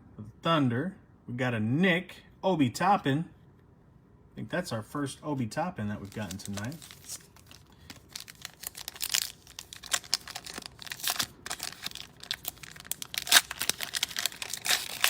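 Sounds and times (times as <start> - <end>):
cards being handled: 6.0 - 15.0
plastic wrapper crinkling and tearing: 6.0 - 15.0.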